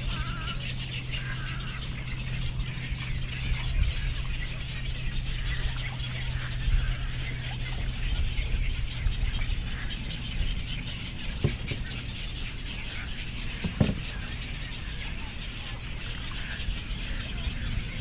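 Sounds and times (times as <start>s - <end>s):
dull knocks: 11.3s - 12.0s, 13.6s - 14.2s.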